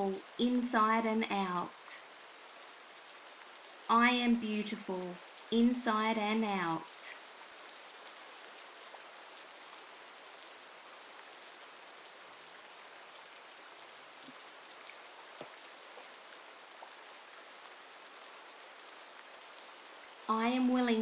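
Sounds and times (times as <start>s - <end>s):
steady rain: 0.0s - 21.0s
raindrop ticks: 6.8s - 9.8s, 14.1s - 20.7s.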